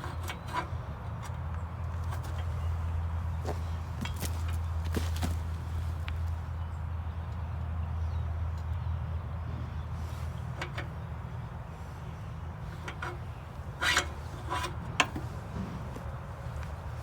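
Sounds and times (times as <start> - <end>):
low mechanical hum: 0.0 - 17.0
metal scraping: 12.6 - 17.0.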